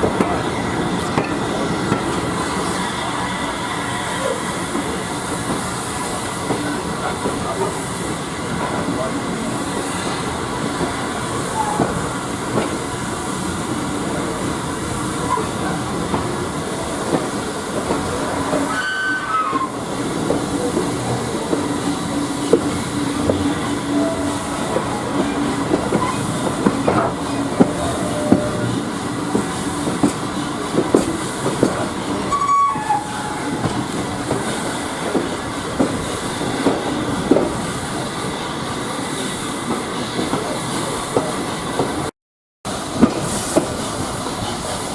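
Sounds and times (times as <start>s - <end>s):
train coach rumbling on track: 0.0s - 42.1s, 42.7s - 44.9s
brief high squeals: 18.7s - 19.8s, 32.3s - 33.5s.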